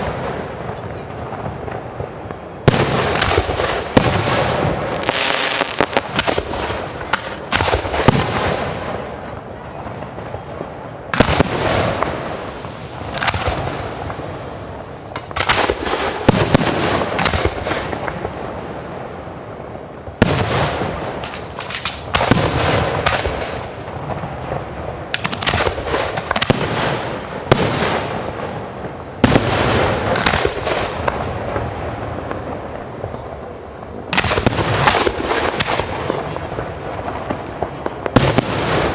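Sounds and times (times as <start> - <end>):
fireworks crackling: 0.0 - 38.9
firework shells bursting: 11.2 - 14.2, 20.2 - 23.9.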